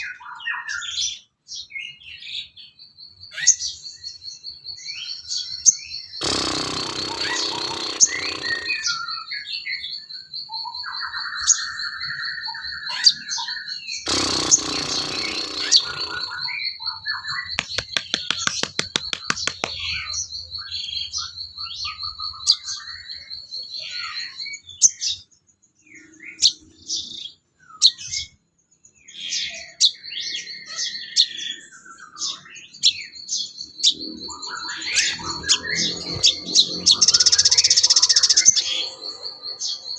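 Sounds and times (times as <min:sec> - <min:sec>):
high fast pulsing bird trill: 0:06.2 - 0:09.4, 0:14.1 - 0:20.7, 0:34.0 - 0:39.9
rapid clicks: 0:17.6 - 0:19.8.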